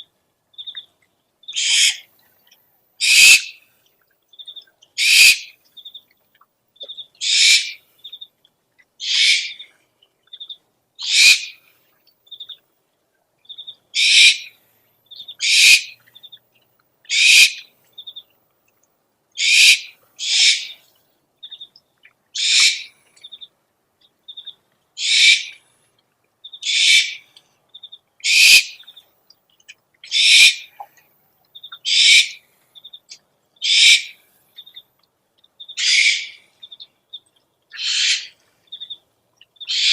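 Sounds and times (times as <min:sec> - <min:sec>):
owl screeching: 0:01.6 - 0:02.0, 0:03.0 - 0:03.6, 0:05.0 - 0:05.5, 0:07.2 - 0:07.8, 0:09.0 - 0:09.6, 0:11.0 - 0:11.6, 0:14.0 - 0:14.5, 0:15.4 - 0:15.9, 0:17.1 - 0:17.6, 0:19.4 - 0:20.8, 0:22.4 - 0:22.9, 0:25.0 - 0:25.6, 0:26.6 - 0:27.2, 0:28.2 - 0:28.8, 0:30.1 - 0:30.7, 0:31.8 - 0:32.4, 0:33.6 - 0:34.2, 0:35.8 - 0:36.4, 0:37.8 - 0:38.4, 0:39.7 - 0:39.9.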